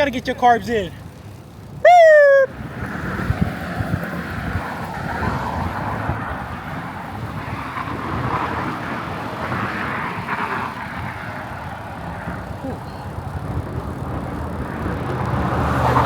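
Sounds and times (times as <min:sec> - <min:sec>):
tyre and road noise: 0:00.0 - 0:16.0
wind buffeting microphone: 0:02.4 - 0:16.0.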